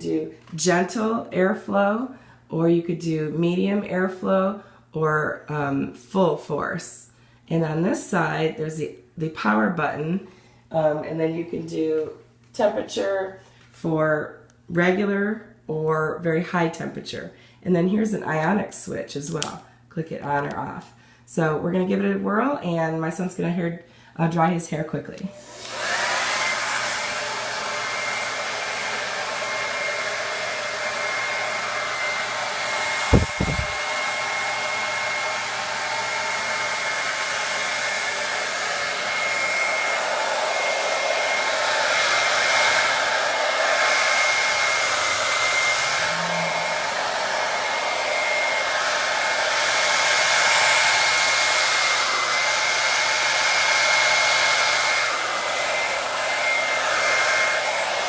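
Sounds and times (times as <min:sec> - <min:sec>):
hair dryer blowing: 0:25.2 - 0:58.0
knock: 0:33.2 - 0:33.8.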